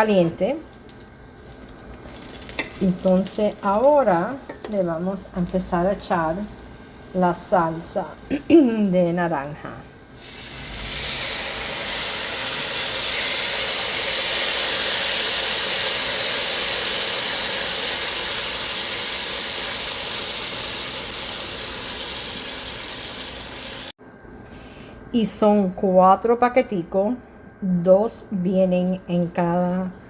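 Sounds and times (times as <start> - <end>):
sauce sizzling in frying pan: 0.6 - 8.9, 9.9 - 23.9.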